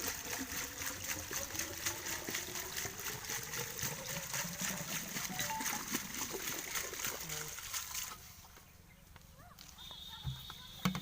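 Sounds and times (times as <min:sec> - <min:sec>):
pump engine pulsing beat: 0:00.0 - 0:07.8
water pouring and splashing: 0:00.0 - 0:08.6.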